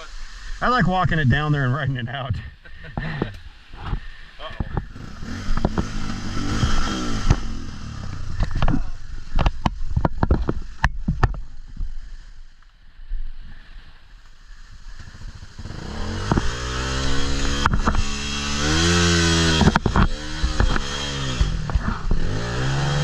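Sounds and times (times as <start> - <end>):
sharp knocks and clatter: 4.6 - 7.5, 18.8 - 22.3
motorcycle engine revving: 4.6 - 11.5, 14.6 - 23.0.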